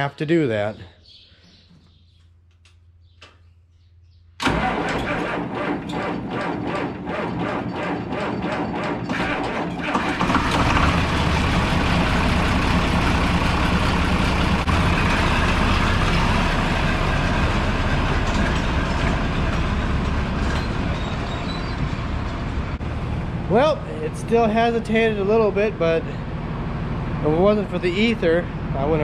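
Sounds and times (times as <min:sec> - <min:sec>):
tractor engine cranking and starting: 0:04.4 - 0:29.0.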